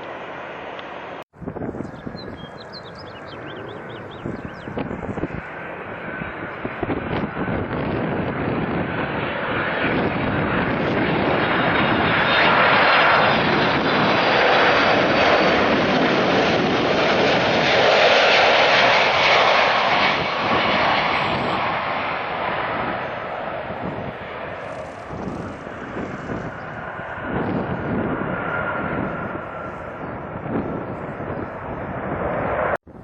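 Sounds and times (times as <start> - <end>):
jet airliner engines roaring: 0.0 - 33.0.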